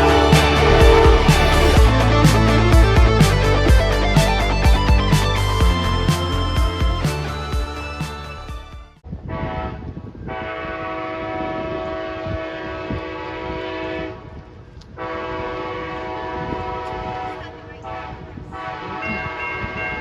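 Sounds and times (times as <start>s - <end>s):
locomotive air horn blasts: 0.0s - 1.9s
train rumble: 0.0s - 2.2s.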